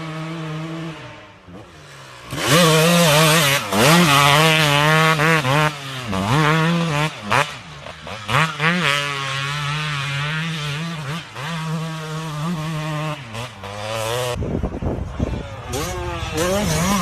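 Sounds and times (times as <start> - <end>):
two-stroke motorbike engine revving: 0.0 - 17.0.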